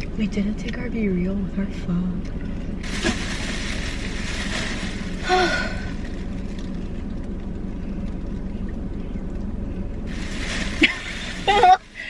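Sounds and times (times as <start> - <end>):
car interior hum: 0.0 - 12.0
person sighing: 5.2 - 6.0.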